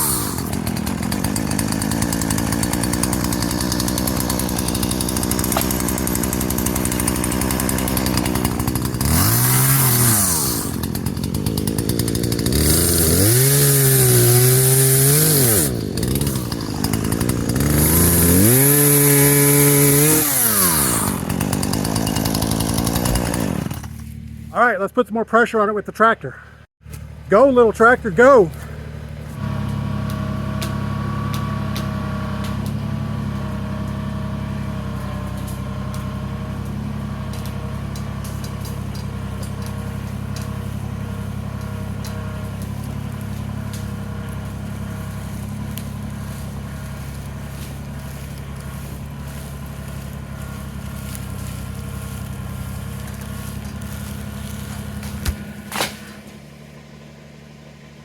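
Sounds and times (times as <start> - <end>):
sharp cracks: 0.0 - 24.1, 35.3 - 56.6
tractor diesel engine under load: 0.0 - 58.0.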